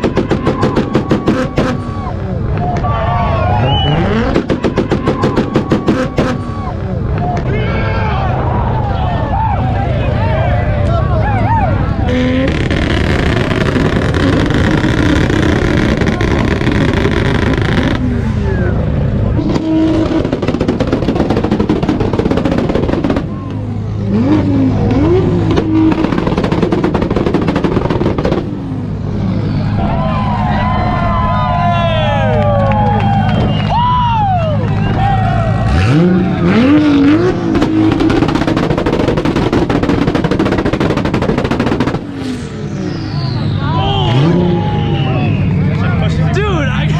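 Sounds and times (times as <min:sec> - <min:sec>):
rapid exhaust pops and bangs: 0:00.0 - 0:03.0, 0:03.6 - 0:07.6, 0:12.1 - 0:18.4, 0:19.3 - 0:29.0, 0:34.6 - 0:42.6
car engine revving on limiter: 0:03.6 - 0:06.9, 0:11.9 - 0:29.7, 0:35.2 - 0:46.2.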